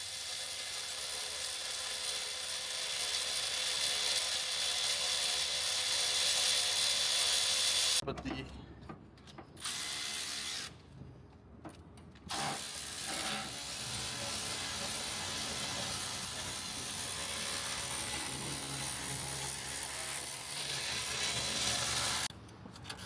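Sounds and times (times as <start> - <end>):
cordless electric ratchet running: 0.0 - 8.0.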